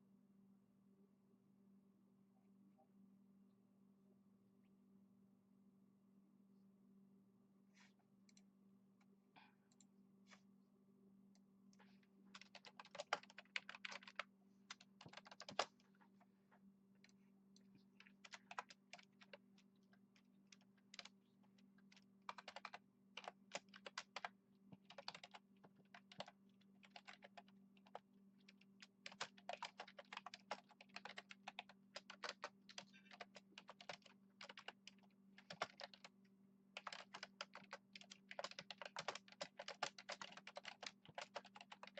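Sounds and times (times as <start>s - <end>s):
faint low hum: 0.0s - 41.9s
typing on a keyboard: 12.3s - 15.8s, 18.0s - 19.7s, 20.5s - 21.1s, 21.8s - 36.1s, 36.8s - 41.9s.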